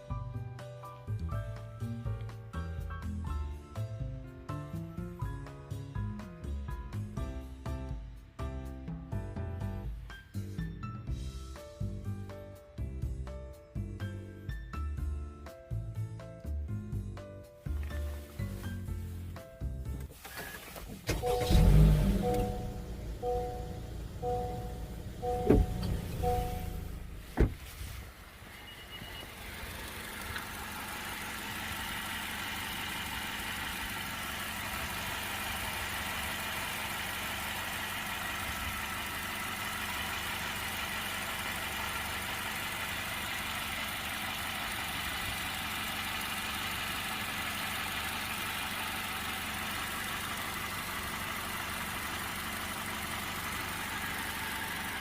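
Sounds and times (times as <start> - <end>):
car engine starting and idling: 17.6 - 55.0
short electronic beeps: 22.2 - 26.9, 28.6 - 29.3.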